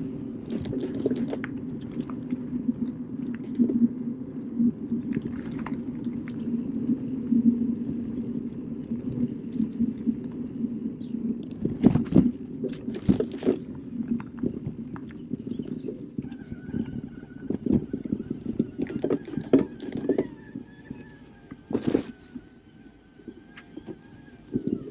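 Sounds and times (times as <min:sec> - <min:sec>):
bike tyres rumbling on trail: 0:00.0 - 0:02.7, 0:04.8 - 0:24.9
wind: 0:00.0 - 0:24.9
bike rattling over bumps: 0:11.6 - 0:20.8, 0:21.6 - 0:22.6.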